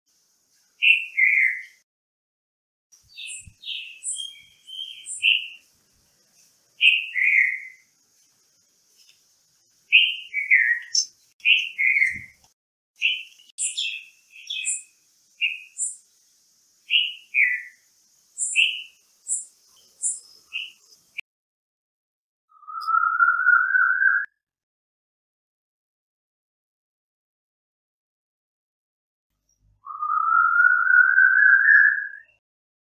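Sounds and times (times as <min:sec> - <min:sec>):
high bird chirps: 0:00.8 - 0:01.8, 0:03.0 - 0:05.7, 0:06.8 - 0:07.9, 0:09.9 - 0:12.4, 0:13.0 - 0:16.0, 0:16.8 - 0:21.2, 0:22.5 - 0:24.3, 0:29.5 - 0:32.4
faint high hiss: 0:03.0 - 0:21.2.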